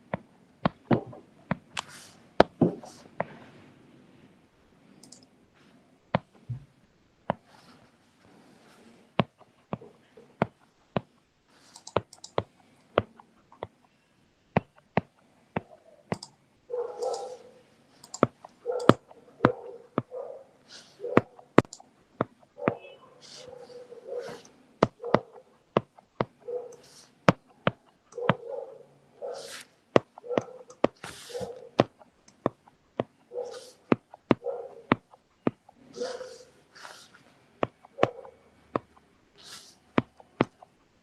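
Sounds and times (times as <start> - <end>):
computer mouse clicking: 0.1 - 3.3, 4.9 - 5.3, 9.2 - 14.0, 14.6 - 20.1, 20.7 - 28.5, 29.4 - 40.8.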